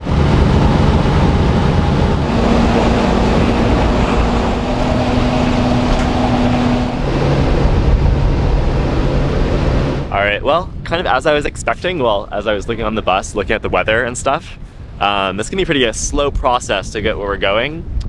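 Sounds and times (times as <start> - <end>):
vehicle engine rumbling: 0.0 - 10.4.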